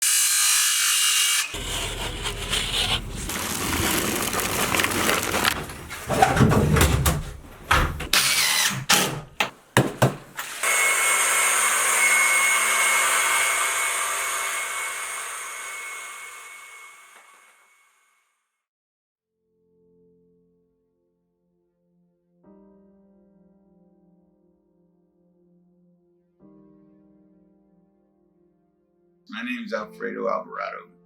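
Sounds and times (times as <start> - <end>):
power tool drilling and cutting: 0.0 - 5.3, 8.1 - 9.0, 10.4 - 17.6
power tool whine: 10.4 - 18.0.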